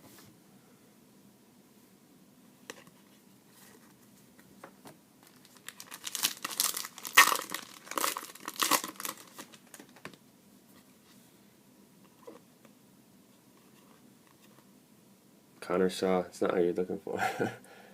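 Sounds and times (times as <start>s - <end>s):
foil wrapper tearing and crinkling: 5.2s - 9.9s.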